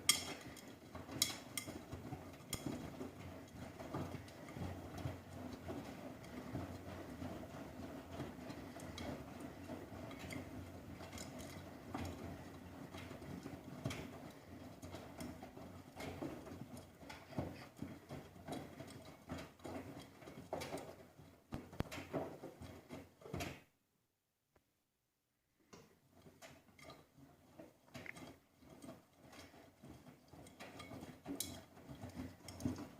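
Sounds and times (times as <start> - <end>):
laundry tumbling knocks: 0.0 - 23.7
washing machine motor hum: 0.0 - 23.7, 25.7 - 32.9.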